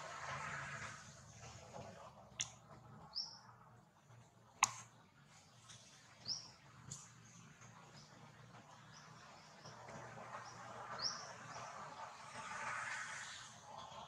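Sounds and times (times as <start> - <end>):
small bird chirping: 3.1 - 3.5.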